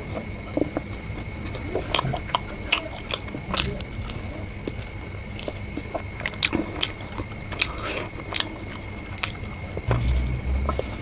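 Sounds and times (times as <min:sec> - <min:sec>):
chewing fried chicken: 0:00.0 - 0:11.0
faint high-pitched hum: 0:00.0 - 0:11.0
wet crackly mouth clicks: 0:00.6 - 0:09.9
low rumble: 0:09.8 - 0:11.0.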